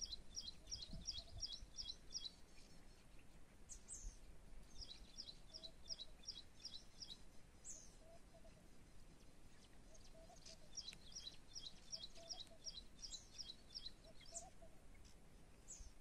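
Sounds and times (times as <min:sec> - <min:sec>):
faint outdoor background: 0:00.0 - 0:16.0
down-slurred bird calls: 0:09.8 - 0:15.1.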